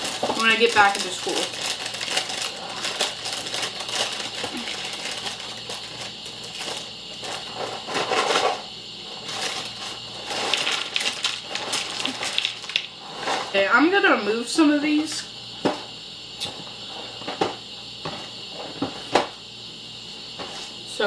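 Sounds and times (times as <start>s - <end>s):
cereal box and plastic bag crinkling: 0.0s - 8.5s, 9.2s - 13.5s.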